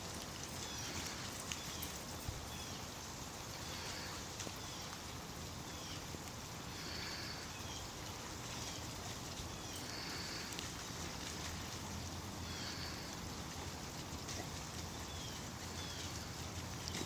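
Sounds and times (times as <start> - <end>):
steady rain: 0.0 - 17.0.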